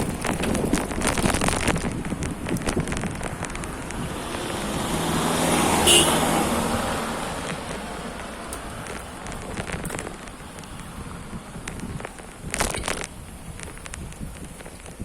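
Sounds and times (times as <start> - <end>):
motor vehicle passing: 0.0 - 12.0
microphone crackle: 0.0 - 15.0
wind buffeting microphone: 0.0 - 15.0.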